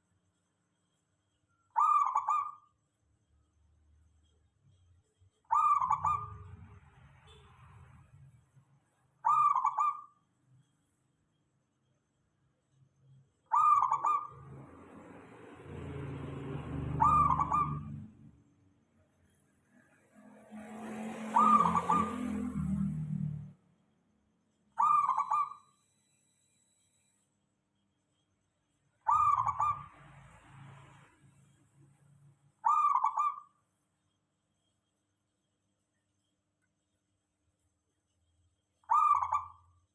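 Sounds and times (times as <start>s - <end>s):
dove cooing: 1.8s - 2.6s, 5.5s - 6.4s, 17.0s - 18.0s, 21.2s - 22.4s, 24.8s - 25.6s, 29.1s - 29.8s, 38.9s - 39.5s.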